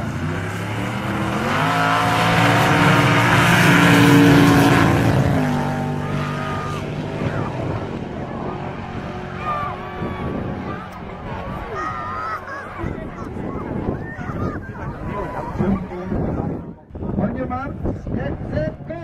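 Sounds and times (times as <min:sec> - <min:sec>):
car engine revving hard: 0:00.0 - 0:12.4.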